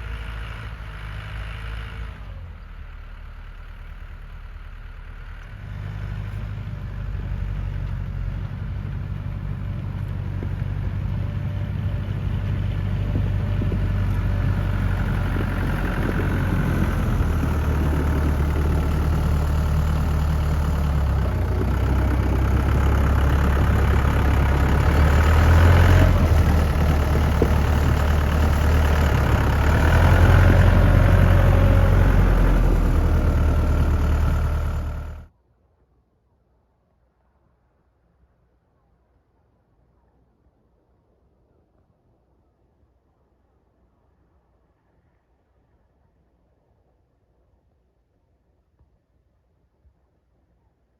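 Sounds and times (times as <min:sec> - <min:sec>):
tractor diesel engine running: 0:00.0 - 0:35.3.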